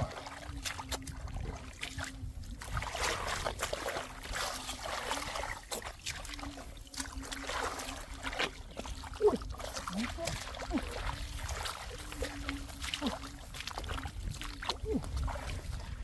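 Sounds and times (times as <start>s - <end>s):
muddy water splashing: 0.0s - 16.0s.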